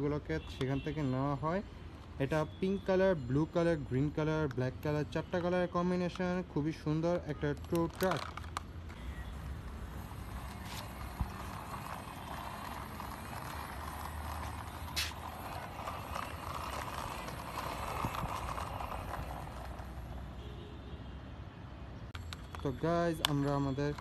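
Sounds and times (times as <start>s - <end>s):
toy truck wheels rattling: 3.0s - 20.4s, 22.2s - 24.0s.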